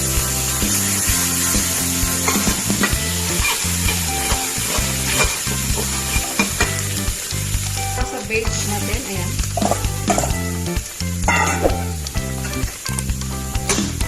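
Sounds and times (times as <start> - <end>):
food sizzling in a pan: 0.0 - 14.0
spatula scraping a pan: 1.4 - 7.0.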